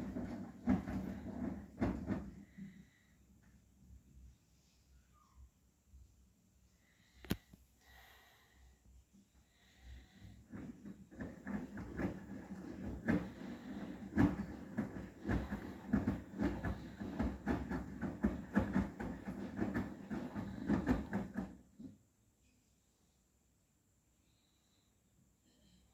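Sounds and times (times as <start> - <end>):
cushions thumping in drum: 0.0 - 2.6, 10.5 - 21.9.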